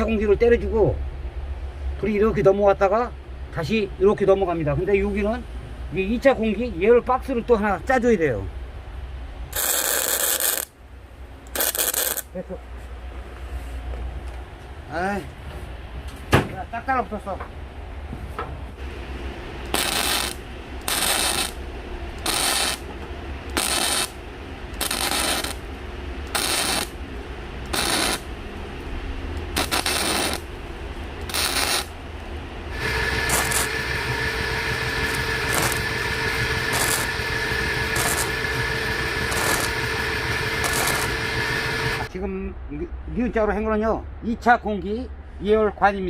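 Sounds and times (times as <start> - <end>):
steady whine: 9.0 - 12.6, 16.9 - 42.5
tack welding bursts: 9.5 - 10.7, 11.5 - 12.3, 19.6 - 21.6, 22.2 - 22.9, 23.5 - 25.7, 26.3 - 27.0, 27.6 - 28.3, 29.5 - 30.5, 31.2 - 32.0, 32.7 - 42.1.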